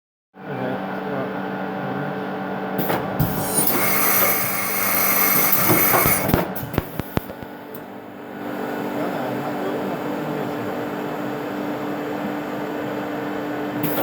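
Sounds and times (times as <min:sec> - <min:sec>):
machine hum: 0:02.8 - 0:11.8
hiss with high whine: 0:03.2 - 0:07.4
sharp clicks: 0:03.4 - 0:07.8.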